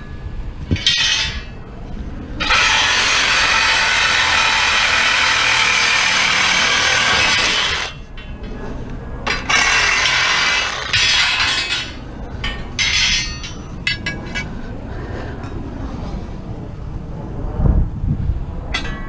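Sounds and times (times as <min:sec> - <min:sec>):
metal pieces clinking and clanking: 0:00.7 - 0:01.6, 0:09.2 - 0:14.5
scrap metal scraping: 0:02.4 - 0:15.3.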